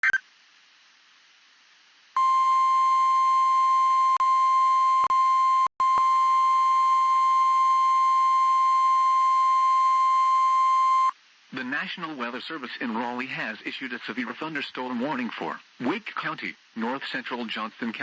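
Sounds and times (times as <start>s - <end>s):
faint hiss: 0.2s - 2.2s, 11.1s - 18.0s.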